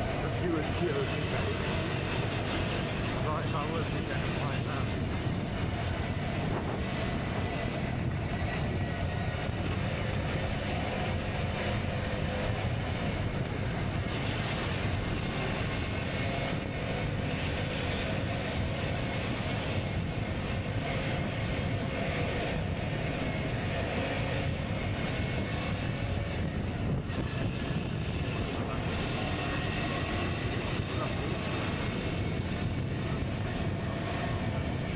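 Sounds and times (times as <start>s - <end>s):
wind rushing over microphone: 0.0s - 34.9s.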